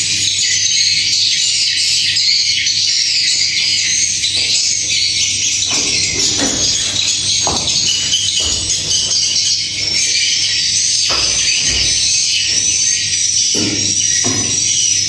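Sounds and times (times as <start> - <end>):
swiftlets chattering: 5.4 - 12.9.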